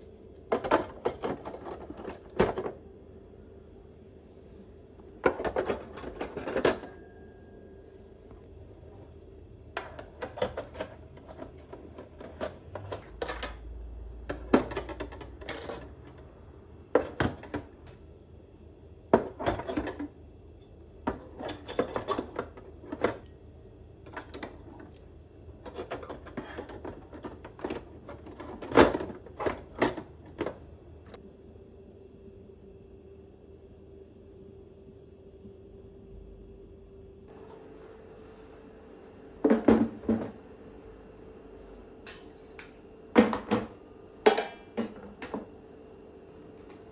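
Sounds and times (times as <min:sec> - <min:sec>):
faint steady hum: 0:00.0 - 0:46.9
dishes clinking and clattering: 0:43.2 - 0:45.4.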